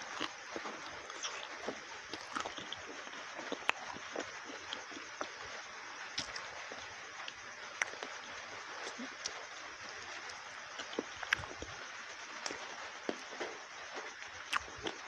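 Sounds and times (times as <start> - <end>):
wet chewing: 0.0 - 5.4, 10.2 - 11.7, 14.5 - 15.0
steady hiss: 0.0 - 15.0.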